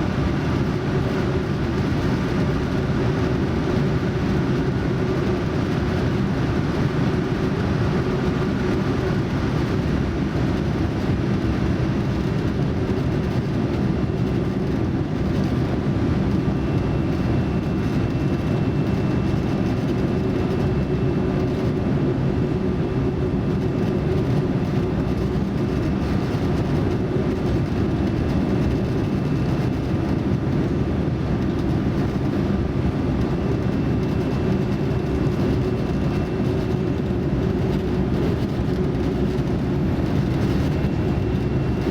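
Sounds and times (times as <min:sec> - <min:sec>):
airliner cabin engine drone: 0:00.0 - 0:41.9.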